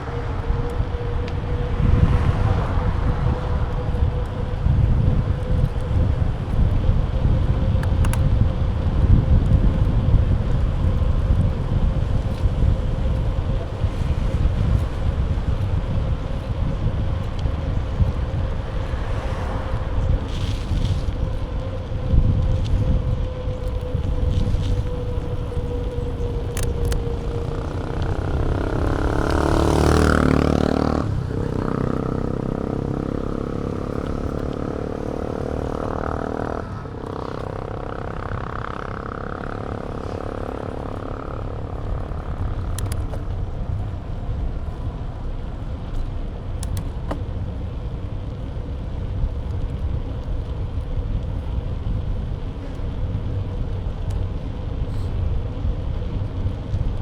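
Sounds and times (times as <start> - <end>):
motor vehicle passing: 0.0 - 6.0, 11.9 - 45.8
wind and road rush: 0.0 - 57.0.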